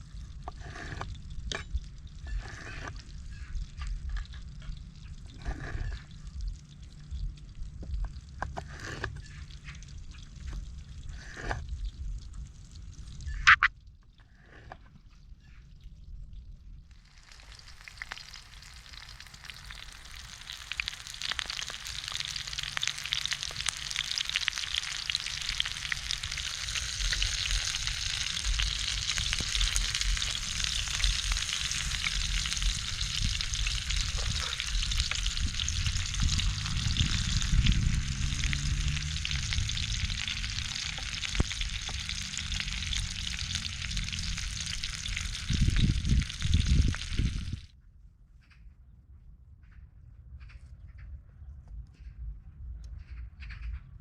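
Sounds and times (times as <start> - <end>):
low rumble: 0.0 - 14.6, 15.7 - 47.8
food sizzling in a pan: 16.9 - 47.7.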